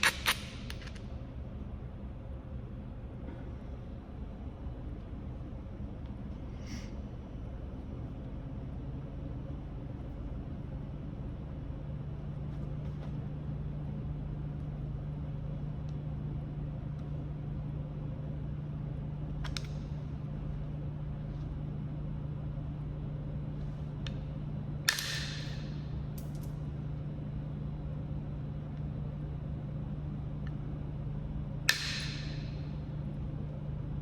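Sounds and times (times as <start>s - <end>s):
stone knapping clicks: 0.0s - 1.1s
low hum and rumble: 0.0s - 34.0s.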